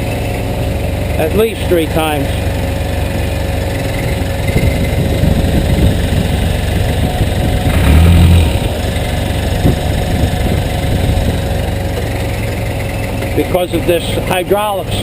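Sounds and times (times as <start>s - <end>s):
backhoe diesel engine running: 0.0s - 15.0s.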